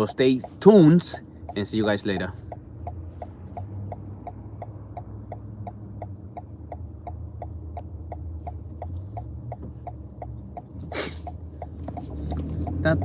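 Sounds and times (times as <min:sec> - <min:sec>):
car engine hum: 0:00.0 - 0:13.0
turn-signal indicator clicking: 0:00.0 - 0:13.0.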